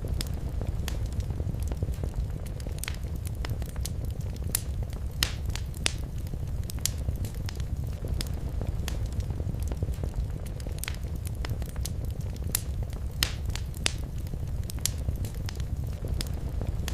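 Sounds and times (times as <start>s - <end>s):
low rumble of flames: 0.0s - 16.9s
wood fire crackling and popping: 0.0s - 16.9s.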